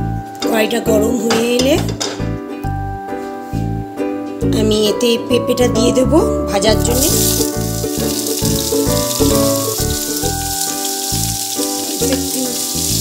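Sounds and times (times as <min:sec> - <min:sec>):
music with plucked notes and bass: 0:00.0 - 0:13.0
papaya sizzling in oil: 0:06.8 - 0:13.0.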